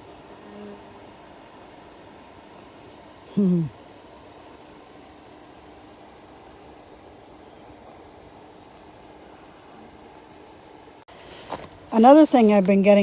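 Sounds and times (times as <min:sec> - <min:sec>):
insects chirping: 0:00.0 - 0:03.4, 0:04.1 - 0:10.9
honeybees humming: 0:00.0 - 0:13.0.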